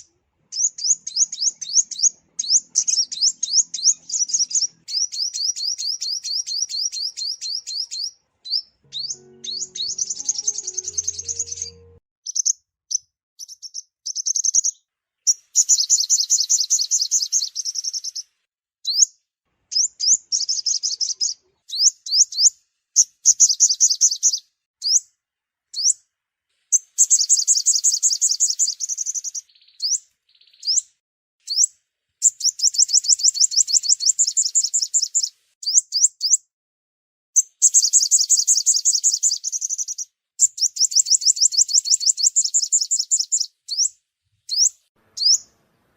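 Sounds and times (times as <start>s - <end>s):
sunbird trilling song: 0.0s - 12.6s, 13.4s - 19.1s, 26.7s - 36.5s, 37.4s - 45.6s.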